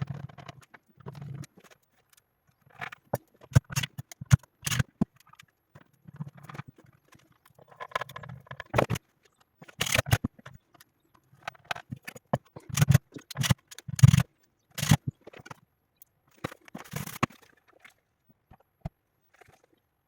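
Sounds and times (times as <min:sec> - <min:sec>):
knocks and scrapes of parts handled: 0:00.0 - 0:15.6.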